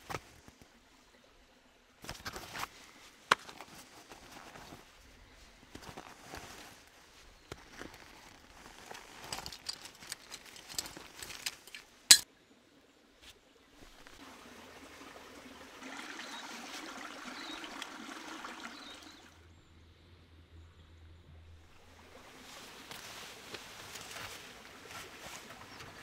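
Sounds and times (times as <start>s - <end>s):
clinks of things being handled: 8.8s - 12.2s.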